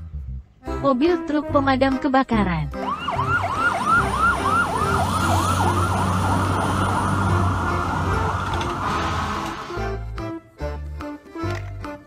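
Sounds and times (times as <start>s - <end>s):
electronic siren yelping: 2.8s - 9.8s
truck engine rumble: 2.8s - 10.0s.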